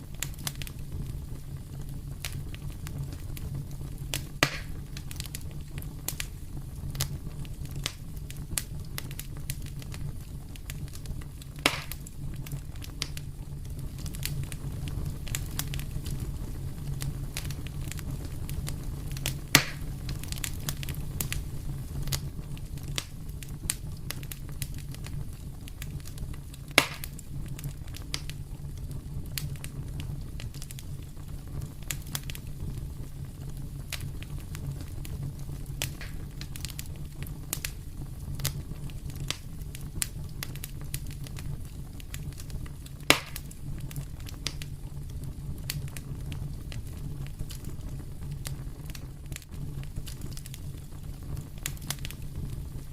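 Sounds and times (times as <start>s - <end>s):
fire pops: 0.0s - 52.9s
low rumble of flames: 0.0s - 52.9s
wood fire crackling: 0.0s - 52.9s.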